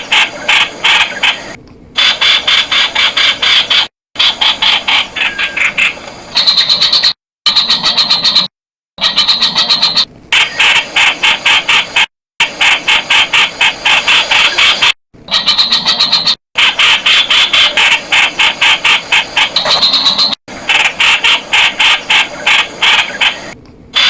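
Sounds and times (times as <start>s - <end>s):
bulbul calling sharp notes: 19.5s - 20.4s.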